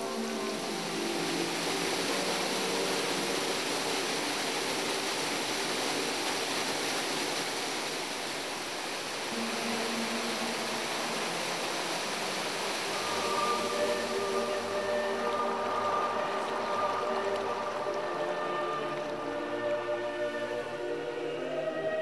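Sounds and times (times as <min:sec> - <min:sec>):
soft background music: 0:00.0 - 0:06.8, 0:09.0 - 0:22.0
river water rushing: 0:00.0 - 0:22.0.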